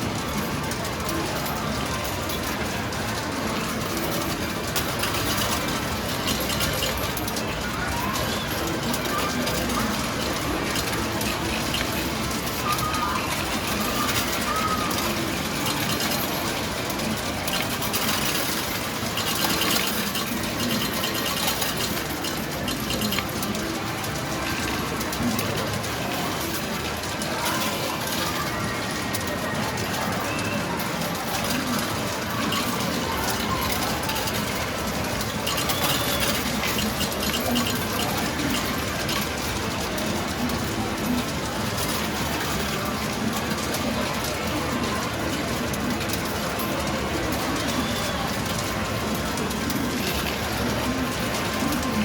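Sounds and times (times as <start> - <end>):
metal medals clicking and rattling: 3.6 - 28.5, 31.0 - 52.0
metal medals clinking: 13.7 - 23.7, 31.4 - 41.2.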